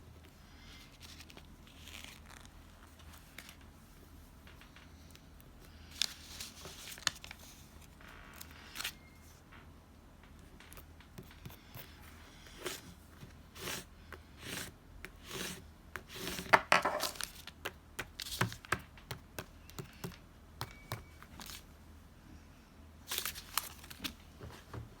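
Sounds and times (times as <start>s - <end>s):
paper rustling and tearing: 23.1s - 24.1s.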